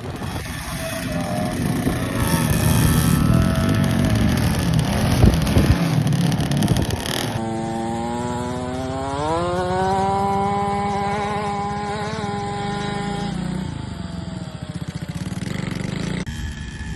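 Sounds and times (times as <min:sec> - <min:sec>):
wind buffeting: 0:00.0 - 0:07.5
motocross bike engine revving: 0:00.0 - 0:16.9.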